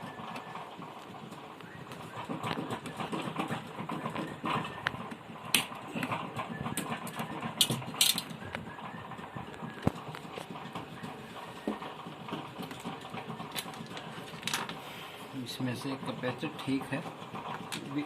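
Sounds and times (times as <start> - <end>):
hand tools tapping circuit board: 2.0 - 14.8.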